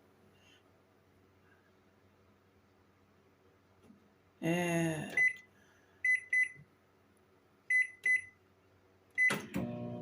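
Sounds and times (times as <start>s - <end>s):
microwave keypad beeps: 5.2s - 5.4s, 6.0s - 6.6s, 7.7s - 8.4s, 9.2s - 9.6s
microwave oven humming: 9.1s - 10.0s.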